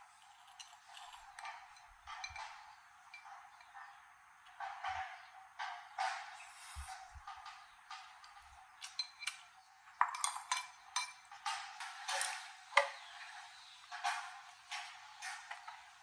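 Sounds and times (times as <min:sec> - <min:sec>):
small hard objects clinking: 0:00.1 - 0:02.6, 0:08.3 - 0:16.0.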